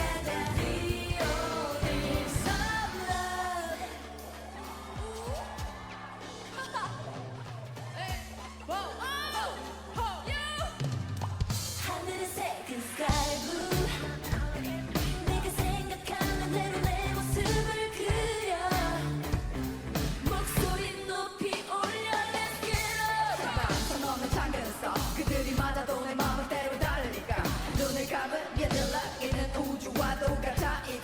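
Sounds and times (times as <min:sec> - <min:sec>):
women singing: 0:00.0 - 0:07.4, 0:11.6 - 0:31.0
drum beat: 0:00.0 - 0:08.5, 0:13.1 - 0:20.9, 0:21.6 - 0:31.0
live band playing: 0:00.0 - 0:08.8, 0:13.1 - 0:21.0, 0:21.8 - 0:31.0.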